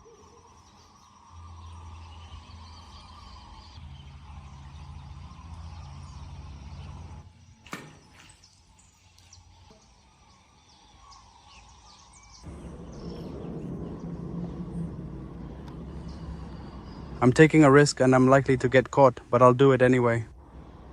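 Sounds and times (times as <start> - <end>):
birds chirping: 0.0 - 20.9
low rumble: 12.4 - 18.8, 20.3 - 20.9.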